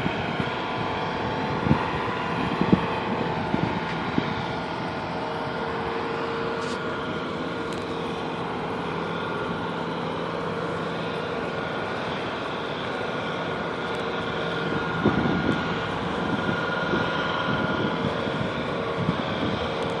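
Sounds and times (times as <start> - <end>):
wind noise: 0.0 - 5.5, 14.4 - 20.0
steady hum: 0.0 - 20.0.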